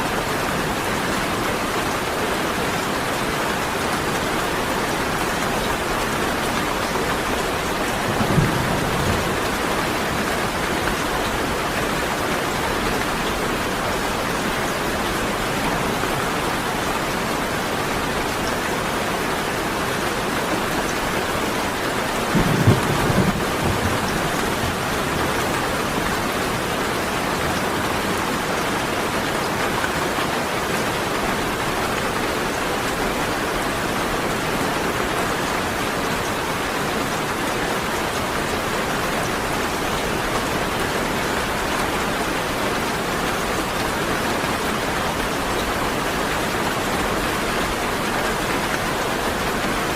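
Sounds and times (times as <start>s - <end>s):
heavy rain: 0.0s - 49.9s
thunder rumbles: 8.0s - 10.6s, 22.3s - 26.0s.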